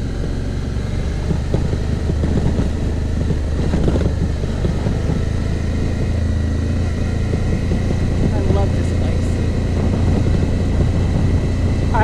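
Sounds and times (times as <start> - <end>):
motorcycle engine running: 0.0 - 12.0
knocks and rattles: 1.2 - 6.1.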